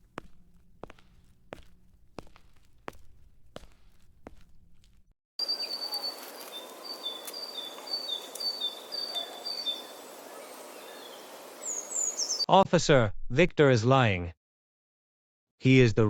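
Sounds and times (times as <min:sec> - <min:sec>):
footsteps: 0:00.0 - 0:05.1, 0:05.9 - 0:08.5
outdoor ambience: 0:00.0 - 0:12.5
small bird chirping: 0:05.4 - 0:12.5.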